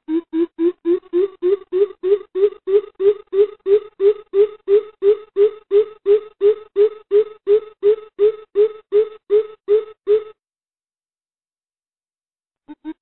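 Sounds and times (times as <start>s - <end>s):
coucal low hooting call: 0.0s - 10.4s.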